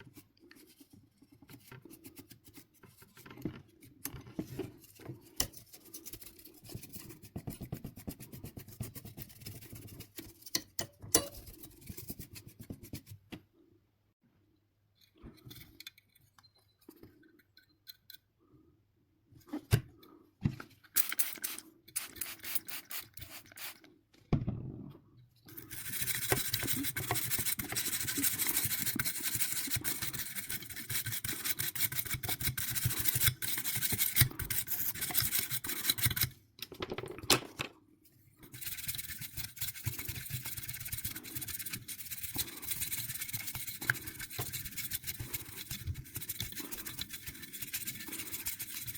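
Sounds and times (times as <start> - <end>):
brush scrubbing plastic parts: 0.0 - 13.3, 20.8 - 23.9, 25.5 - 36.4, 38.1 - 48.9.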